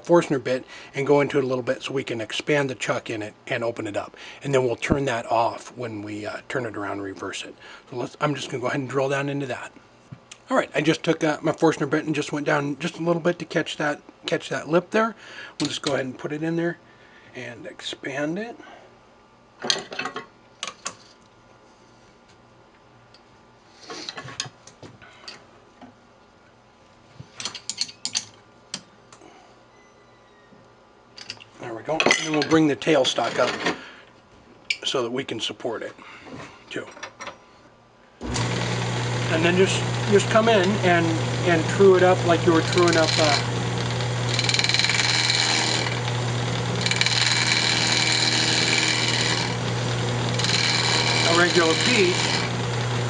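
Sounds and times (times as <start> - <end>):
turning tool chattering rasp: 38.2 - 53.0
lathe chuck clicking and rattling: 42.5 - 52.9.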